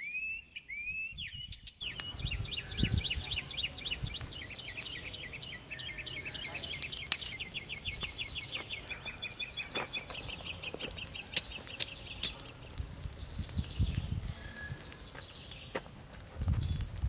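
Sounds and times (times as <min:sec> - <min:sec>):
songbird trilling chirps: 0:00.0 - 0:15.8
faint bird calls: 0:01.9 - 0:10.4.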